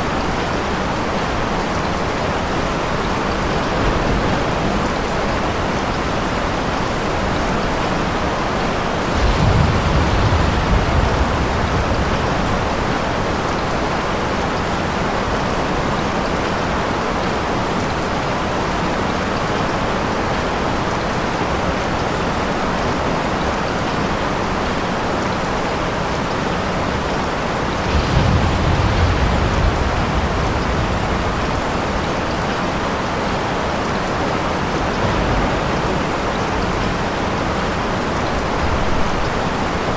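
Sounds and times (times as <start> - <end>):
steady rain: 0.0 - 39.9
distant thunder rumbles: 1.0 - 15.6, 26.6 - 39.9.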